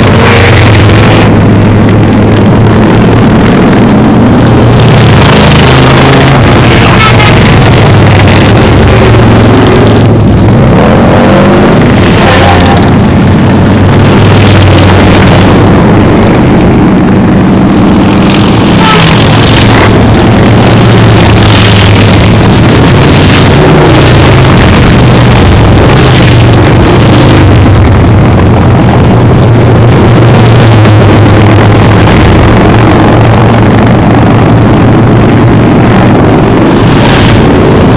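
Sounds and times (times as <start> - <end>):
motorcycles passing close by: 4.2 - 27.8.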